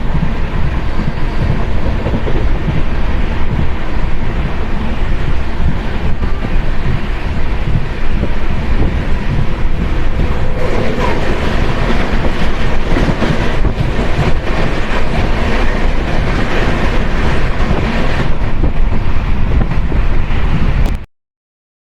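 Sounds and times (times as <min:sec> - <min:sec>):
train rumbling past: 0:00.0 - 0:20.9
wheels clacking on rails: 0:00.0 - 0:20.9.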